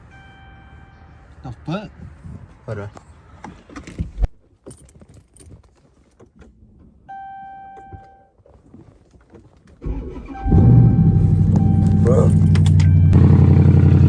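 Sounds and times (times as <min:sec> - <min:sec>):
car engine cranking and starting: 0:09.7 - 0:14.0
electronic beep: 0:10.3 - 0:13.2.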